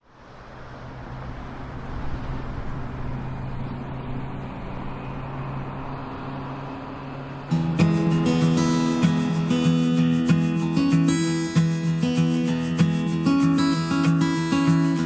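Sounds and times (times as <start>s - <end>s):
car engine hum: 0.0s - 15.0s
road noise: 0.0s - 15.0s.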